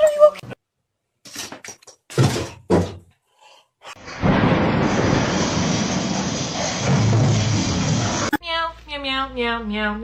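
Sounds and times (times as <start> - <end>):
knocks and thuds: 2.1 - 3.1.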